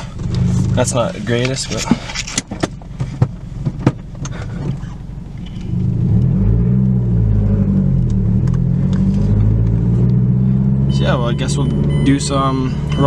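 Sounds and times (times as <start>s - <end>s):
engine clicks and knocks: 0.0s - 6.3s
car engine rumbling: 0.0s - 13.0s.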